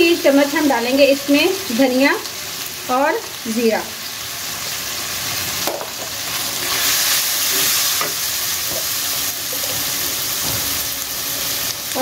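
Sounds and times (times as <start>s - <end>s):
masala sizzling in pan: 0.0s - 12.0s.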